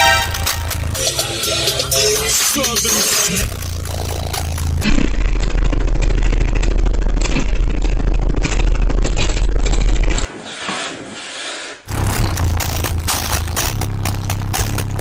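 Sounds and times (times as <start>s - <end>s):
deep subwoofer bass note: 11.9s - 15.0s.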